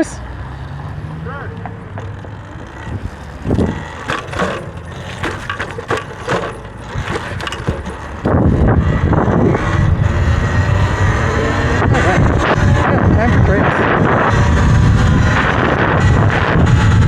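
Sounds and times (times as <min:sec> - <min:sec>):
clatter and crunching knocks: 0:01.6 - 0:09.4
wind noise on microphone: 0:02.9 - 0:17.0.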